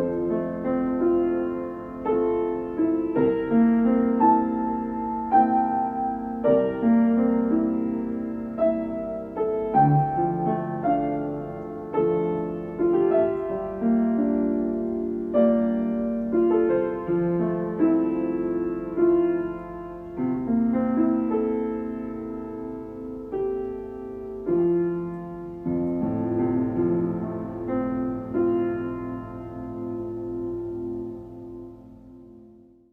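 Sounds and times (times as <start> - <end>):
slow piano melody: 0.0 - 32.9.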